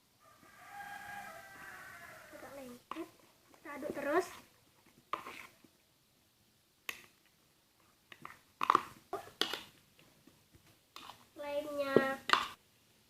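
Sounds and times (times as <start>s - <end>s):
slime stirring wet smacks: 2.9s - 5.8s, 6.8s - 12.6s.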